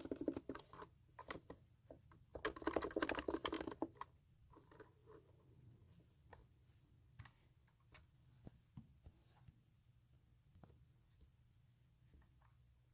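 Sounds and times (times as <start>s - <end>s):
computer keyboard typing: 0.0s - 1.6s, 2.3s - 4.1s.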